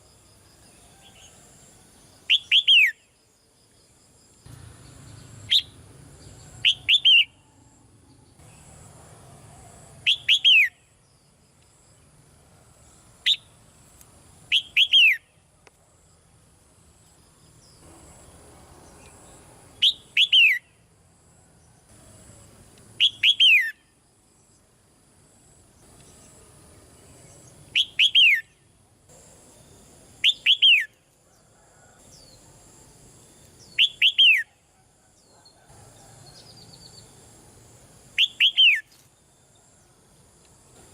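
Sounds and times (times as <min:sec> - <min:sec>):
bird chirping: 0:02.0 - 0:03.2, 0:04.5 - 0:08.8, 0:10.0 - 0:11.2, 0:14.5 - 0:15.4, 0:18.8 - 0:20.8, 0:23.0 - 0:24.6, 0:25.8 - 0:28.6, 0:30.2 - 0:31.0, 0:33.4 - 0:34.6, 0:38.2 - 0:39.8.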